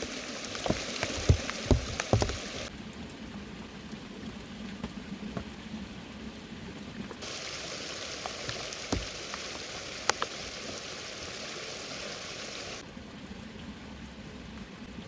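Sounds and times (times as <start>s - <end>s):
heavy rain hissing: 0.0s - 2.7s, 7.2s - 12.8s
louder higher hiss: 7.2s - 12.8s.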